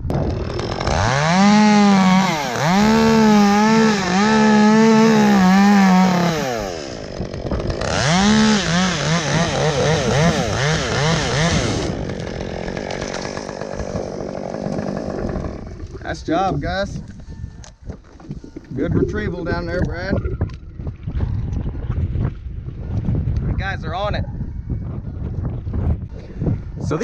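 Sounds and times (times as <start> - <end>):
chainsaw revving and cutting wood: 0.0 - 16.6
chainsaw idling: 0.2 - 16.3.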